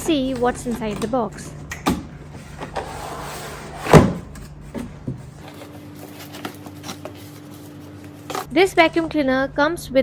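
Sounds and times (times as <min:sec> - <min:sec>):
cardboard rustling and scraping: 0:02.3 - 0:08.5.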